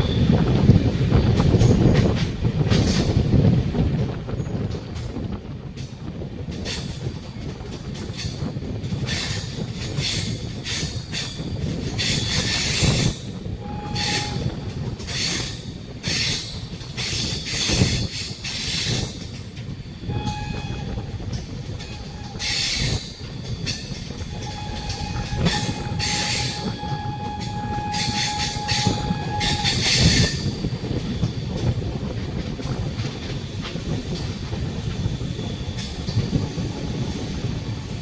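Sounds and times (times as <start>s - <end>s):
train rumbling past: 0.0s - 38.0s
train wheels squealing: 8.1s - 31.7s, 33.2s - 38.0s.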